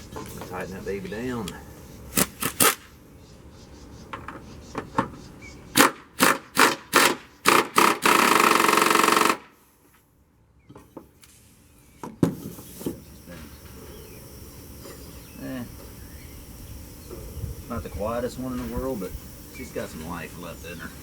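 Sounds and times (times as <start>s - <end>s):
power tool rattling: 2.2s - 2.9s, 5.8s - 9.5s.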